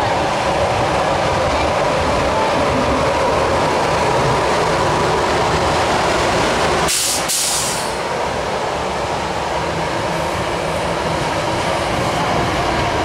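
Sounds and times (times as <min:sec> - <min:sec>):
train wheels rumbling on rail: 0:00.0 - 0:13.0
burst of hiss: 0:06.9 - 0:08.0.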